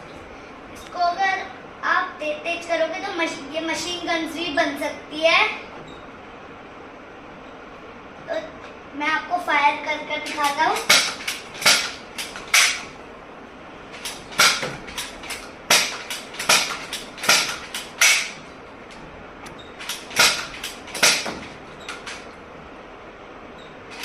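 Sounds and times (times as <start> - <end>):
toy gun cocking and firing: 10.3 - 12.8, 14.0 - 18.4, 19.8 - 21.3.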